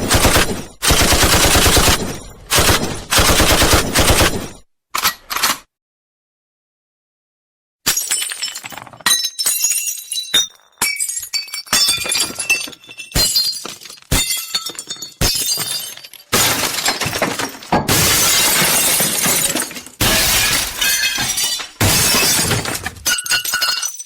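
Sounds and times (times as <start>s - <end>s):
glass shattering: 7.9s - 24.0s.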